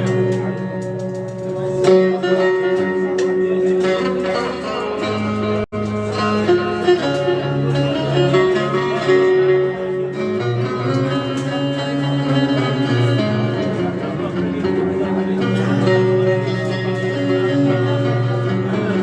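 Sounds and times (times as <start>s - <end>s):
plucked and bowed strings music: 0.0s - 19.0s.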